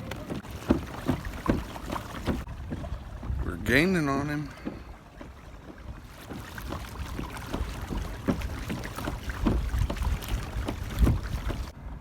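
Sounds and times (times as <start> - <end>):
water splashes and slaps: 0.0 - 12.0
water washing along hull: 0.0 - 12.0.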